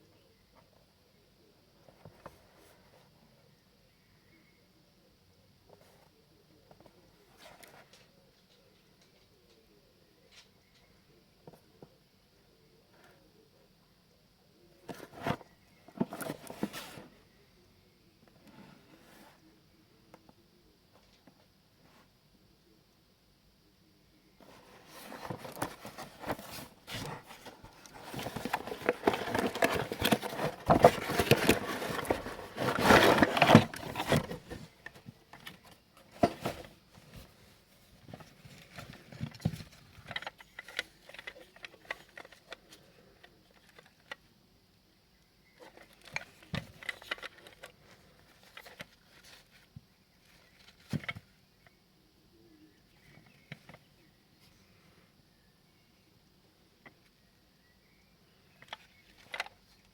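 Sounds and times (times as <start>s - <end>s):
packaging rustling: 24.4s - 37.4s.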